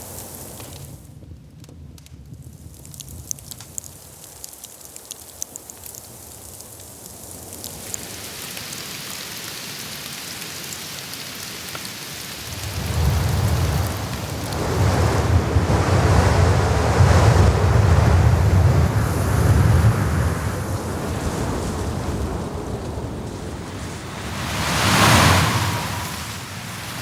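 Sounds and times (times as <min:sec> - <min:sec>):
blizzard wind gusts: 0:12.2 - 0:27.0.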